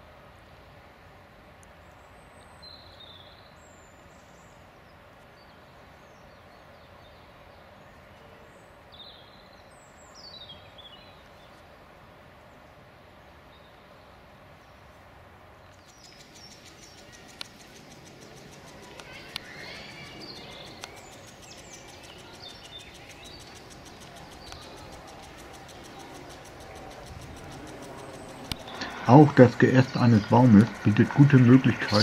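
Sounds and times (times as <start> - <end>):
outdoor background noise: 0.0 - 32.0
high bird chirps: 15.8 - 32.0
rapid ticking: 15.9 - 32.0.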